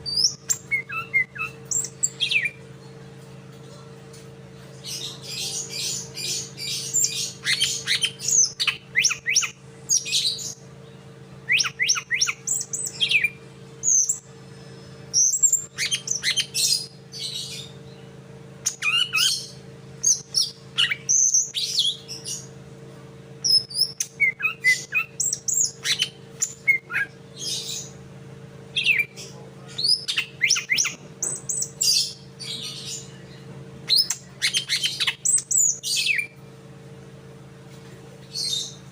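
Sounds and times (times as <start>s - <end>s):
songbird chirping and whistling: 0.0s - 2.6s, 5.0s - 10.6s, 11.5s - 22.5s, 23.4s - 28.0s, 28.7s - 29.2s, 29.8s - 36.4s
steady low hum: 0.0s - 38.9s.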